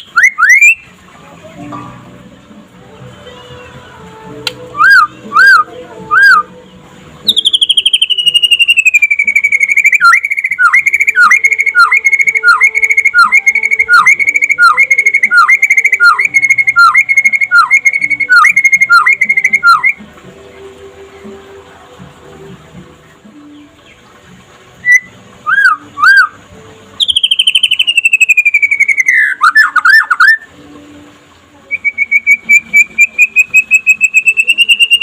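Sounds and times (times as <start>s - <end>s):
bird singing whistled notes: 0.0s - 0.9s, 4.7s - 6.5s, 7.2s - 20.0s, 24.8s - 26.4s, 27.0s - 30.5s, 31.7s - 35.0s.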